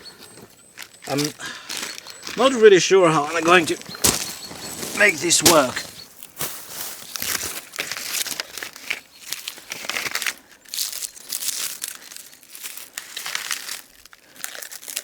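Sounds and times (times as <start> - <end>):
bark peeling and crackling: 0.8 - 6.0.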